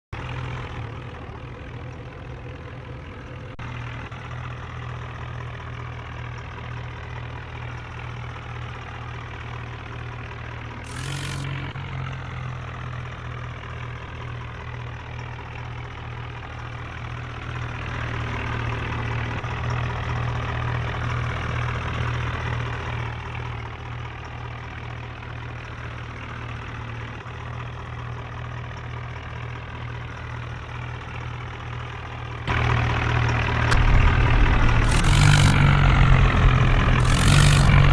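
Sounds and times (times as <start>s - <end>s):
diesel engine idling: 0.2s - 37.9s.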